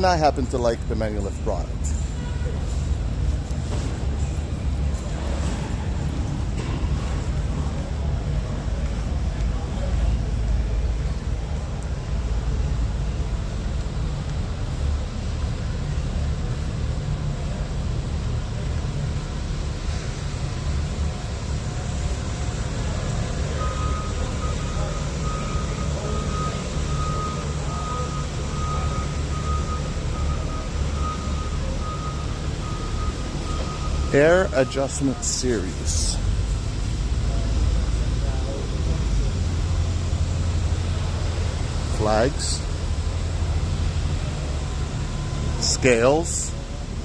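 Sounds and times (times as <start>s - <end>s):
exhibition hall background rumble: 0.0s - 47.0s.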